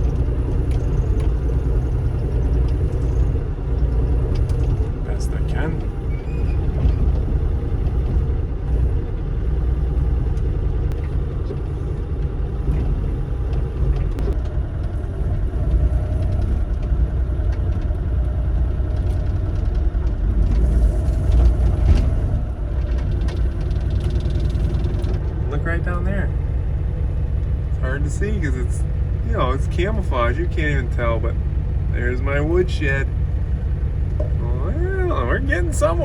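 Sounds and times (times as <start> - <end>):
faint clicks and scrapes: 0.0 - 16.9, 20.4 - 25.4
excavator diesel engine running: 0.0 - 36.0.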